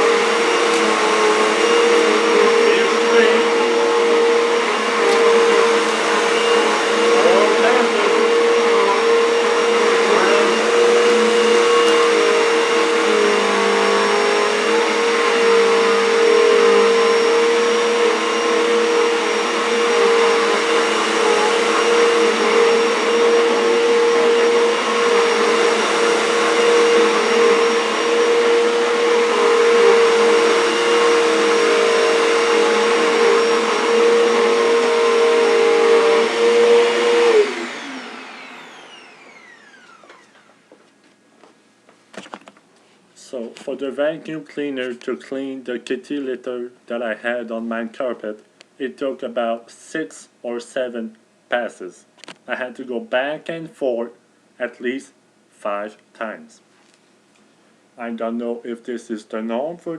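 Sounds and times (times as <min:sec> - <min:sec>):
vacuum cleaner running: 0:00.0 - 0:40.8.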